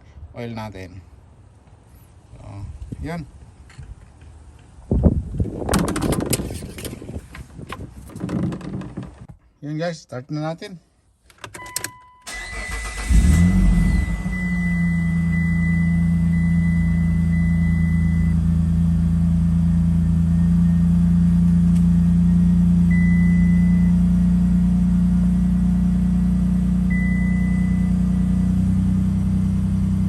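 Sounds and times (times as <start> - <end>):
car engine starting and idling: 11.5 - 30.0.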